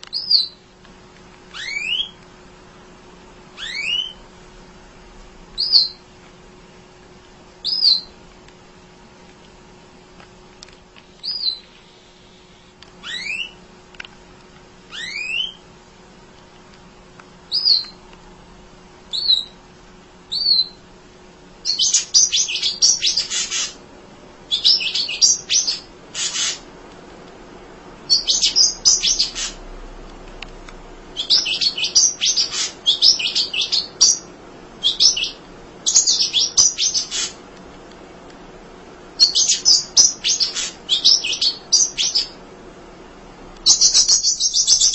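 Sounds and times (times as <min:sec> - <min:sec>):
bird chattering twitters: 0:01.6 - 0:02.2, 0:03.6 - 0:04.2, 0:13.0 - 0:13.6, 0:14.9 - 0:15.6, 0:19.1 - 0:19.6, 0:21.6 - 0:23.8, 0:24.5 - 0:26.6, 0:28.1 - 0:29.6, 0:31.2 - 0:37.4, 0:39.2 - 0:42.4, 0:43.6 - 0:44.9.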